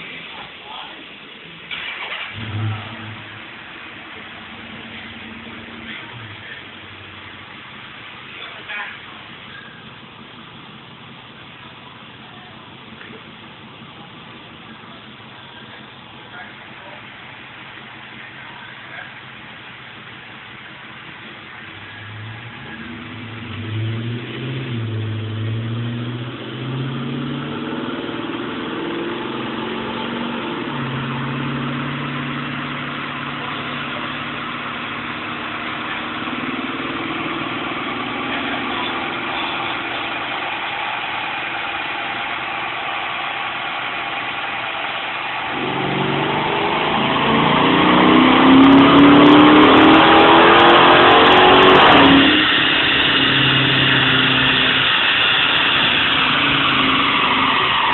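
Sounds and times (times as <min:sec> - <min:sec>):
car engine revving on dyno: 0:01.7 - 0:10.4, 0:15.3 - 0:57.9.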